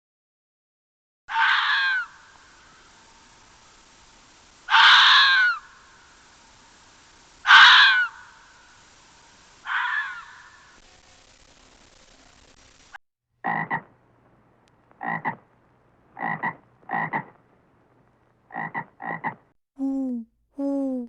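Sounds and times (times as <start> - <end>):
animal harsh cries: 1.3 - 2.2, 4.7 - 5.7, 7.4 - 8.2, 9.6 - 10.5.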